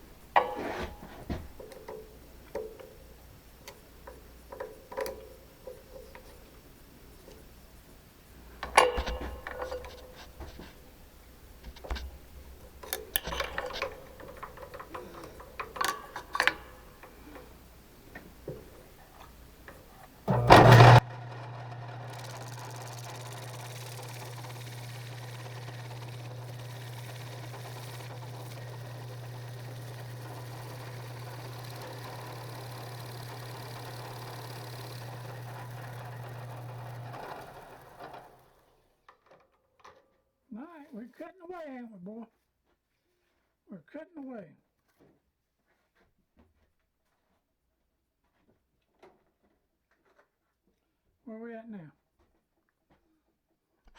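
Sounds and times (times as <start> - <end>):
machine tool motor humming: 0.0 - 38.4
metal parts clicking and knocking: 8.6 - 10.8, 11.4 - 21.0.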